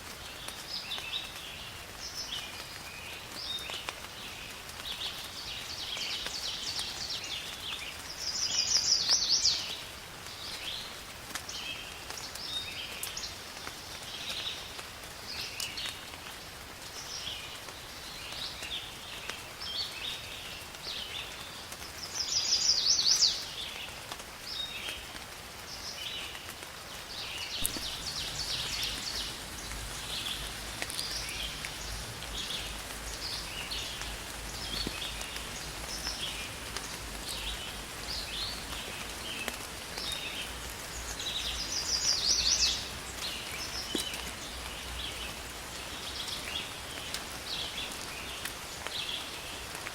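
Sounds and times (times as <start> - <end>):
rain hiss: 0.0 - 49.9
birds chirping and singing: 27.6 - 36.6.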